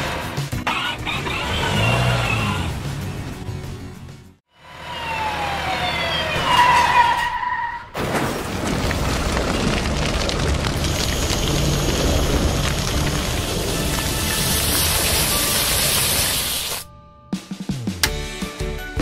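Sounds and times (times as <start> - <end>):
siren wailing: 4.6 - 7.9
rushing hiss: 10.9 - 16.8.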